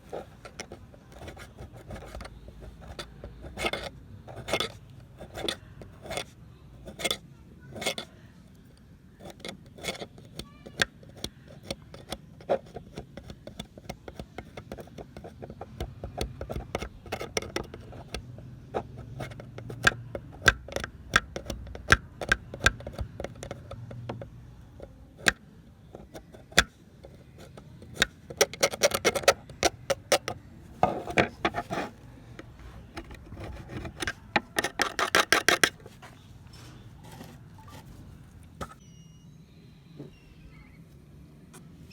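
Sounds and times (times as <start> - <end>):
metal scraping: 27.5 - 38.8.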